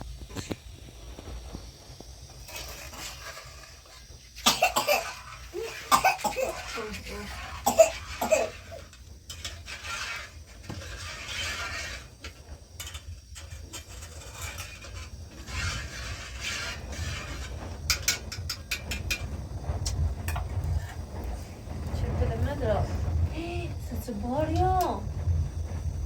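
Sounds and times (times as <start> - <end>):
low rumble: 15.2 - 26.0.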